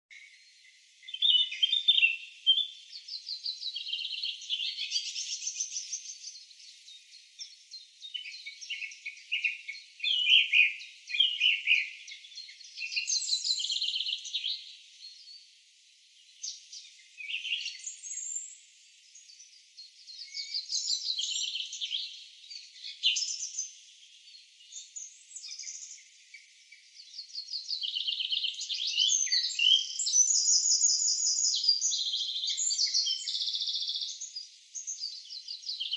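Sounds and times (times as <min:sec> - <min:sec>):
songbirds singing: 0:00.1 - 0:35.9.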